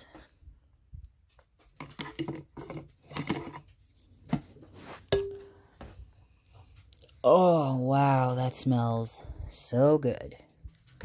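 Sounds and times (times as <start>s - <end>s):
lid and spoon knocking on pot: 5.1s - 5.6s.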